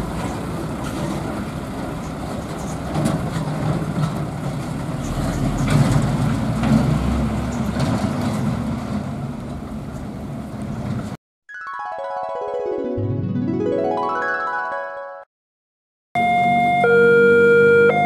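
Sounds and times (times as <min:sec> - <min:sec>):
heavy truck engines rumbling: 0:00.0 - 0:11.2.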